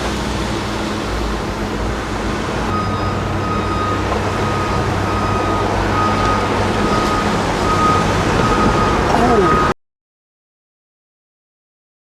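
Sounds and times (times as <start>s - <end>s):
vehicle reversing alarm beeping: 2.7s - 9.8s.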